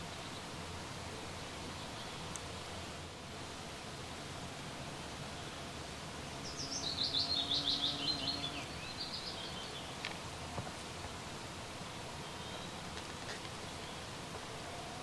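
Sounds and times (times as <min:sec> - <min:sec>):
songbird singing: 0:00.0 - 0:03.0, 0:06.2 - 0:15.0
outdoor background hiss: 0:00.0 - 0:15.0.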